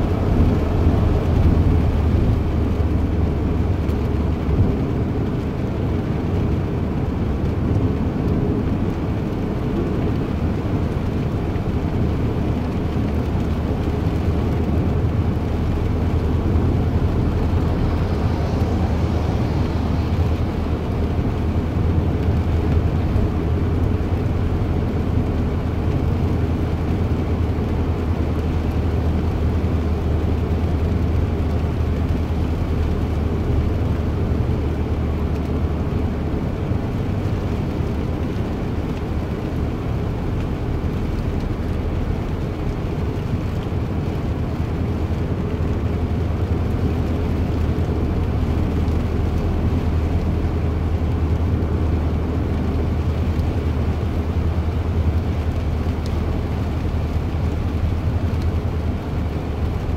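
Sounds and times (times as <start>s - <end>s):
vehicle engine drone: 0.0s - 59.9s
rushing noise: 15.2s - 24.0s.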